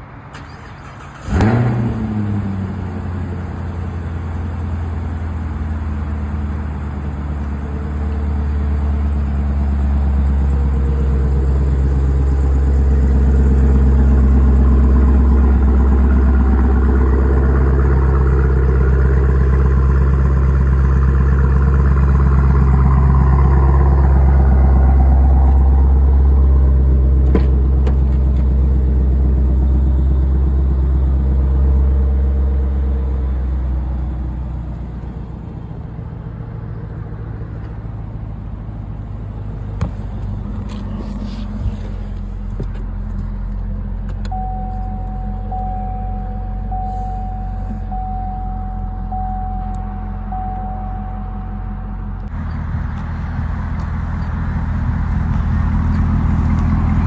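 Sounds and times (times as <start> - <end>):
car engine starting and idling: 0.0 - 57.0
engine revving: 0.9 - 3.4, 8.4 - 28.0, 51.9 - 57.0.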